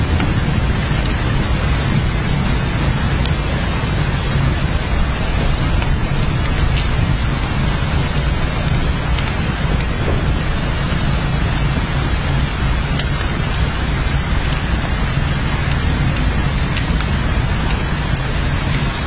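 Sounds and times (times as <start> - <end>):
sharp raindrop ticks: 0.0 - 19.0
steady rain falling: 0.0 - 19.0.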